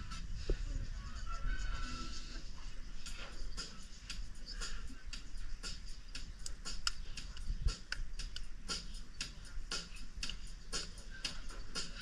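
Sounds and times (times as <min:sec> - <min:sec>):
light irregular clicks: 0:06.2 - 0:10.5.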